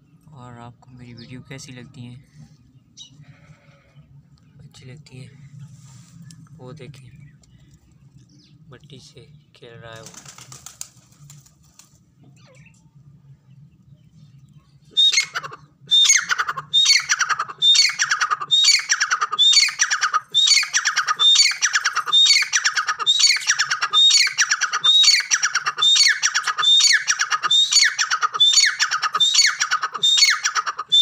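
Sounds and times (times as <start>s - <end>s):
bird harsh descending call: 15.0s - 31.0s.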